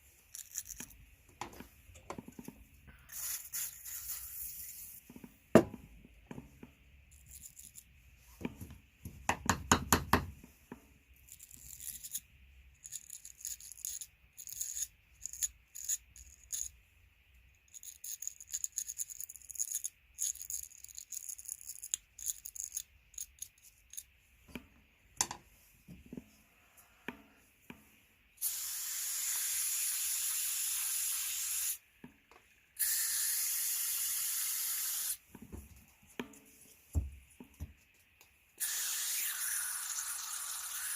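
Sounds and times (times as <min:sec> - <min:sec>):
small brush scrubbing metal: 0:03.0 - 0:05.1
aerosol can spraying: 0:03.1 - 0:05.0, 0:28.4 - 0:31.8, 0:32.8 - 0:35.2, 0:38.6 - 0:40.9.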